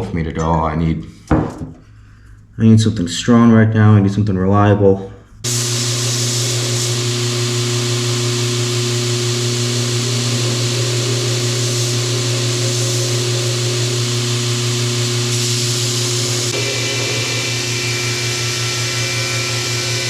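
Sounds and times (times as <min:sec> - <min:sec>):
power tool motor running: 0:05.5 - 0:20.0.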